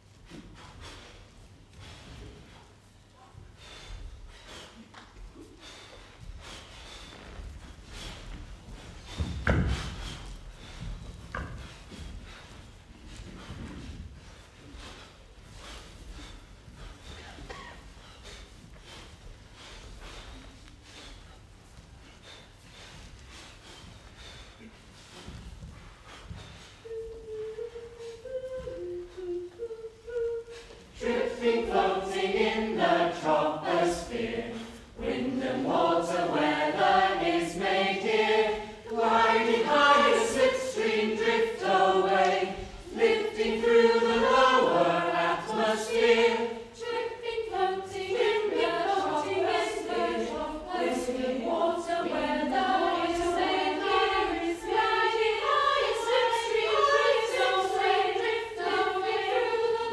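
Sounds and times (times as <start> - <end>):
choir singing in harmony: 29.9 - 59.9.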